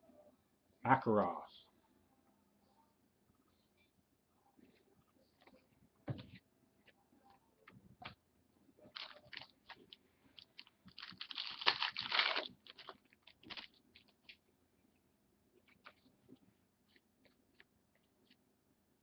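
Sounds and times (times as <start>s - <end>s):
rustling and crinkling: 8.8s - 14.5s.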